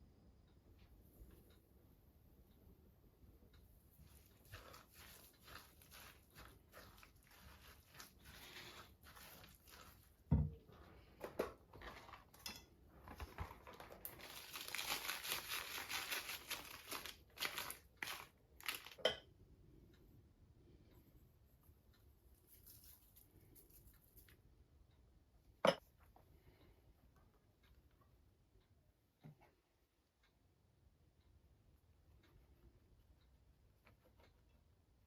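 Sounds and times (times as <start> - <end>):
rustling and crinkling: 3.9 - 19.0, 22.3 - 24.4.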